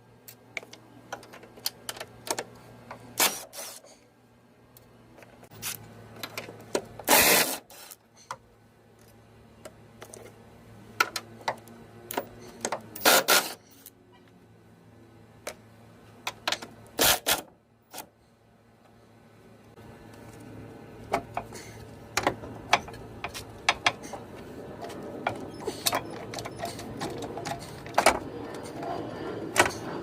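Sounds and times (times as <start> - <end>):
low steady hum: 0.0 - 30.0
tools and metal parts clinking: 12.1 - 14.0.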